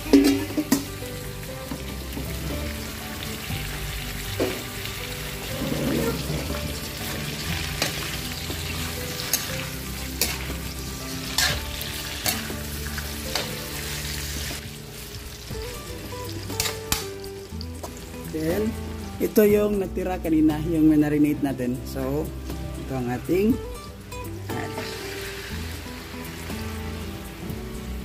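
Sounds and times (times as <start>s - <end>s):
beef sizzling in hot oil: 0.0s - 19.5s, 20.9s - 28.0s
metal spatula scraping a pan: 5.5s - 14.4s.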